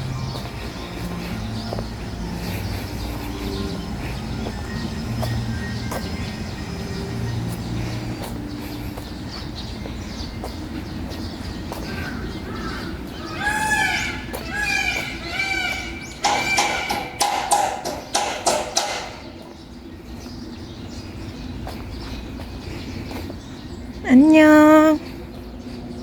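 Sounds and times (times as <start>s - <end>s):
animal calling: 11.9s - 19.2s
sharp clicking squawks: 13.8s - 19.2s.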